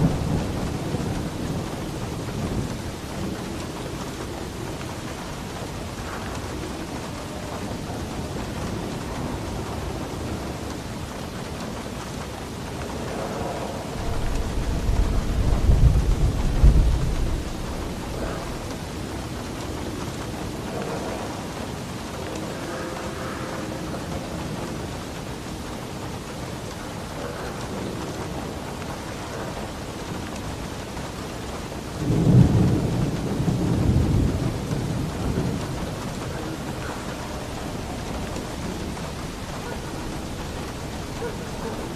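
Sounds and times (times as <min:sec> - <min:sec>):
heavy rain: 0:00.0 - 0:41.9
thunder rolling: 0:00.0 - 0:41.9.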